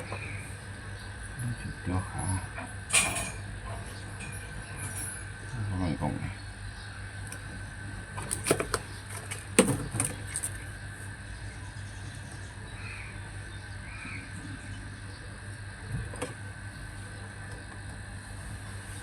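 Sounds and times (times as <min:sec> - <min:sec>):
steady low hum: 0:00.0 - 0:19.0
clicks and knocks of hard parts: 0:08.2 - 0:10.6.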